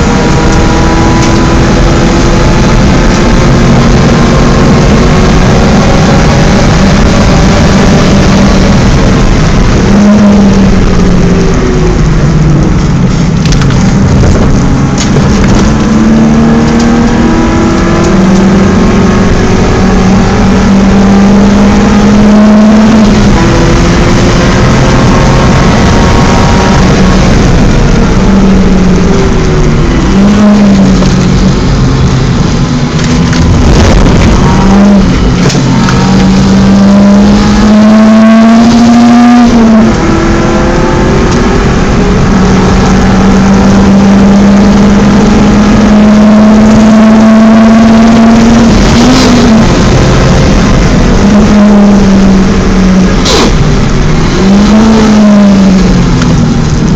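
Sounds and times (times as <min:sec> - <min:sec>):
car engine at racing revs: 0:00.0 - 0:56.9
wind noise: 0:00.0 - 0:56.9
tyre noise: 0:48.4 - 0:56.9.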